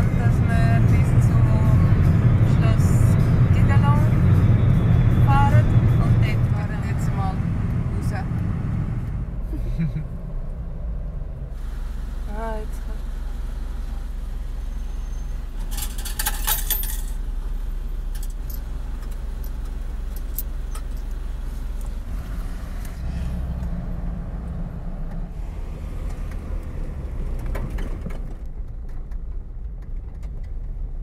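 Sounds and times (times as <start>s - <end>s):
car engine idling: 0.0s - 31.0s
engine pulling away under load: 7.4s - 29.2s
coins jingling: 15.7s - 17.2s.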